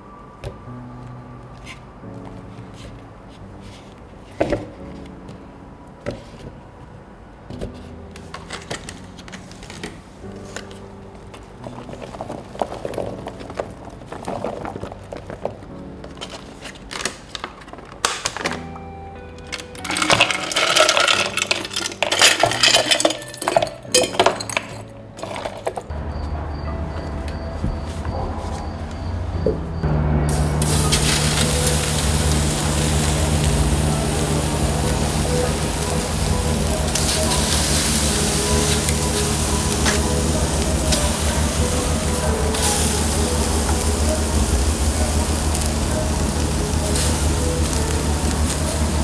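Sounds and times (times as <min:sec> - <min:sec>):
utensils and dishes clattering: 0:19.6 - 0:29.2, 0:30.3 - 0:49.0
faint steady hum: 0:29.8 - 0:49.0.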